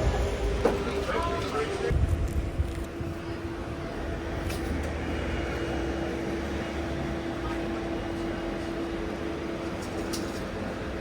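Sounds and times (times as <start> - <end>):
bus engine droning: 0.0 - 11.0.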